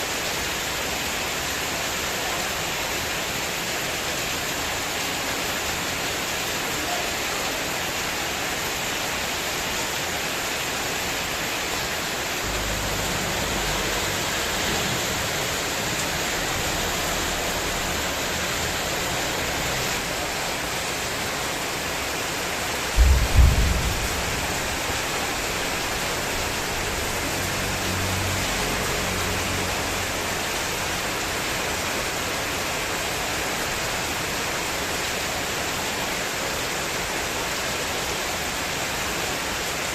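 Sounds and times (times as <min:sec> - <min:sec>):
heavy rain pouring: 0:00.0 - 0:39.9
low rumbling wind gusts: 0:22.9 - 0:27.8
loud low thump: 0:23.0 - 0:26.8.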